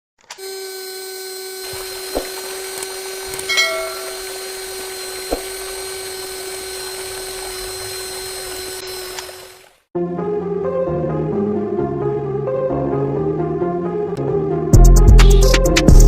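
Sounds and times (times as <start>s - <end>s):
electric motor whining: 0.3s - 9.9s
brief bright ring: 3.5s - 4.2s.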